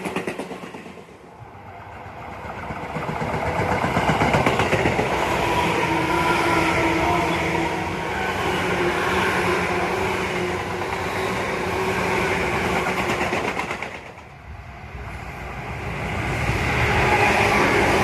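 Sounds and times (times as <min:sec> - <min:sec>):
electric train passing: 0:00.0 - 0:18.0
rail-joint clicks: 0:12.8 - 0:14.3.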